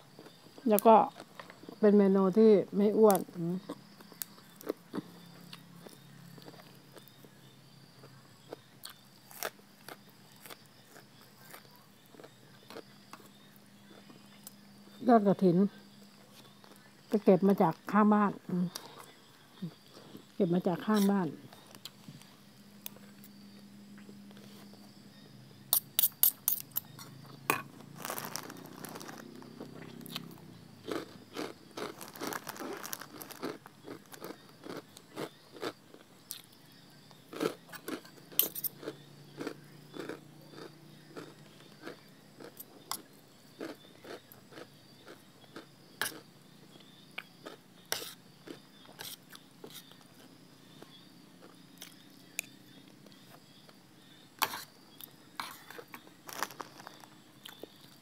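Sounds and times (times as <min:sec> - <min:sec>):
person crunching crisp food: 0:08.0 - 0:13.2, 0:28.0 - 0:36.6, 0:37.3 - 0:46.2, 0:47.4 - 0:50.3, 0:54.5 - 0:58.0.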